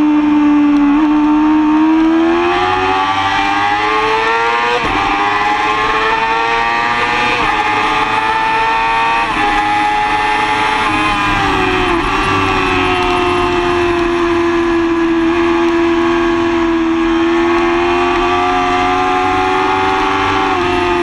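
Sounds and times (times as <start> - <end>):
motorcycle engine accelerating: 0.0 - 21.0
wind noise: 4.6 - 21.0.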